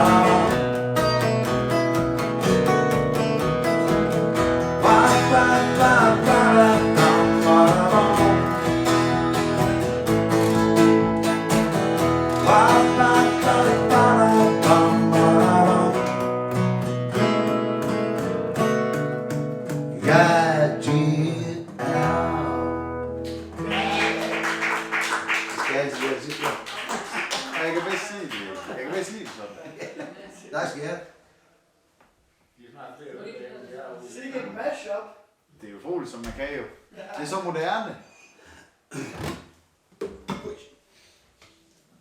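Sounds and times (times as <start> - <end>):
bass line: 0.0 - 16.7
acoustic guitar strumming: 0.0 - 26.2.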